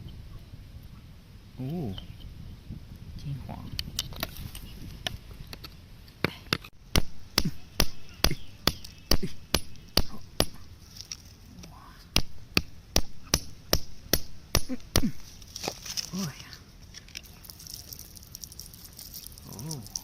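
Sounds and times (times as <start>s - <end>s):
hand tool striking rock: 6.2s - 10.7s, 12.2s - 16.1s.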